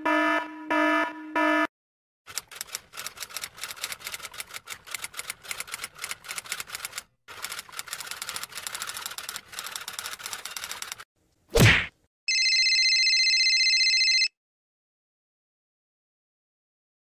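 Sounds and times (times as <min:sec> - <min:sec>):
typewriter keys clacking: 0:02.3 - 0:11.0.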